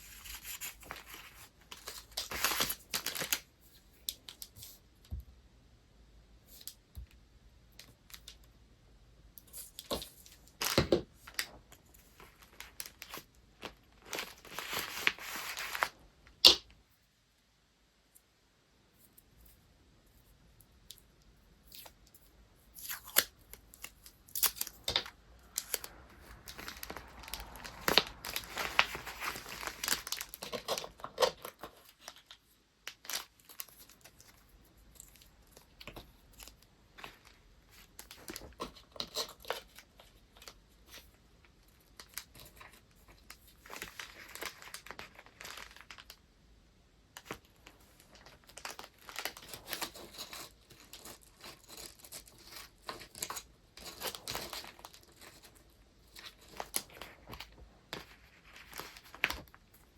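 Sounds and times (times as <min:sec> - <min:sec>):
paper rustling and tearing: 0:00.0 - 0:03.4, 0:09.6 - 0:16.0, 0:24.3 - 0:32.4.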